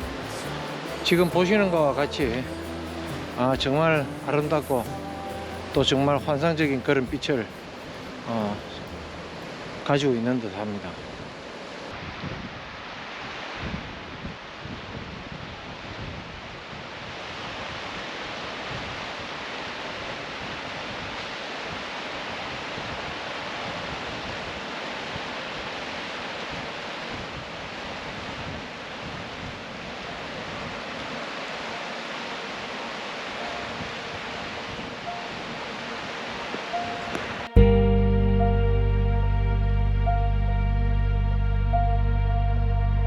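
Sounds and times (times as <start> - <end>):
river rushing: 0.0 - 37.6
wind on microphone: 11.1 - 19.4.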